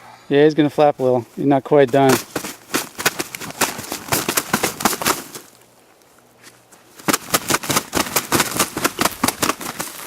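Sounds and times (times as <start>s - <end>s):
turkey wings flapping: 2.0s - 5.6s, 6.9s - 10.0s.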